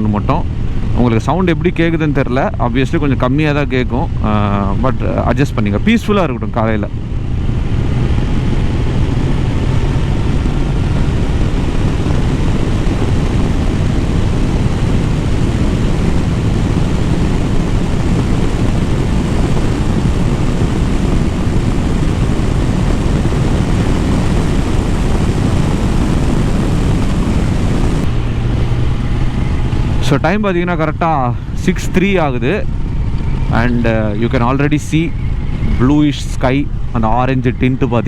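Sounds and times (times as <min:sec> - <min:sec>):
wind and road noise: 0:00.0 - 0:38.0
motorcycle engine running: 0:06.8 - 0:35.7.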